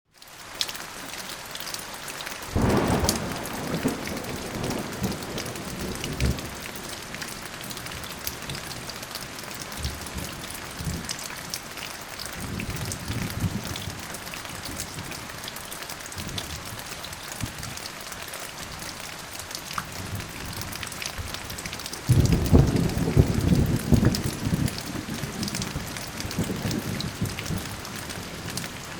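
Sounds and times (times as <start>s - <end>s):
steady rain falling: 0.1s - 28.9s
thunder rumbling: 2.6s - 9.1s, 22.1s - 28.9s.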